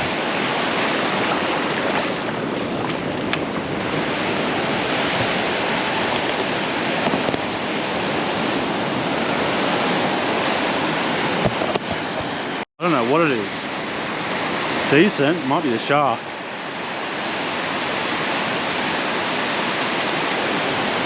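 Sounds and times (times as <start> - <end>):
wind buffeting microphone: 0.0 - 12.6
ocean waves breaking: 0.0 - 21.0.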